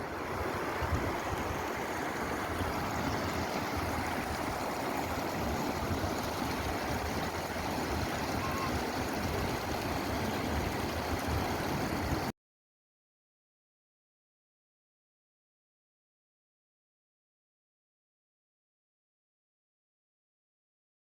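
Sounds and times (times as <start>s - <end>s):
stream rushing: 0.0s - 12.3s.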